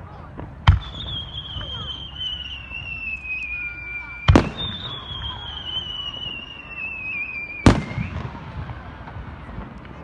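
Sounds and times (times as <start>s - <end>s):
fireworks bursting bangs: 0.4s - 10.0s
high falling whistle: 0.9s - 8.3s.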